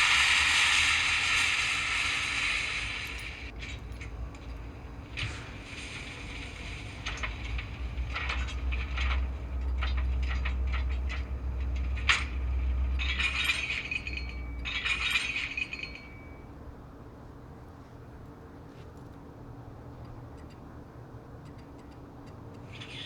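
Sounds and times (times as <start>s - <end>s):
steam hissing bursts: 0.0s - 3.5s, 5.1s - 8.0s
clanks and chuffs: 0.0s - 16.4s, 21.5s - 23.0s.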